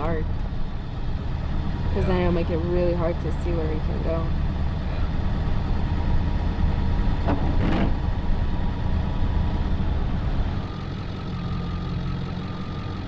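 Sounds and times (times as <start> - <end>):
van engine low rumble: 0.0 - 13.0.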